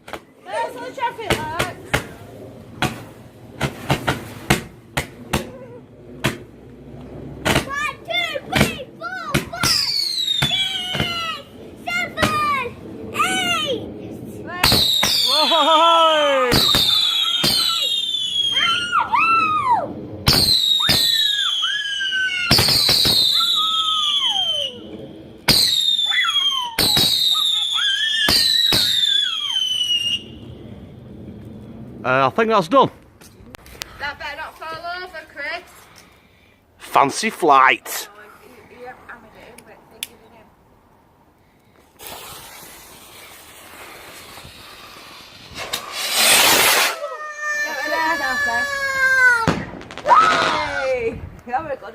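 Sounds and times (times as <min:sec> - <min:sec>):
firework bangs: 0:00.0 - 0:32.0, 0:41.9 - 0:51.8
firework whistles falling in pitch: 0:09.6 - 0:11.4, 0:14.6 - 0:30.5.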